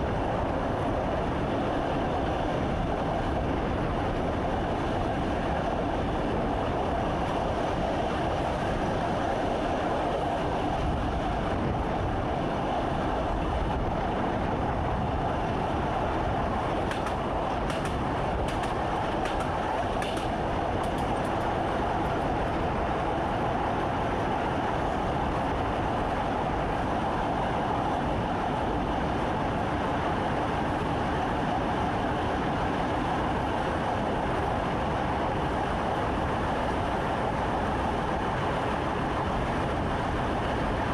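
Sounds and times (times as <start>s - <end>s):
train wheels rumbling: 0.0s - 40.9s.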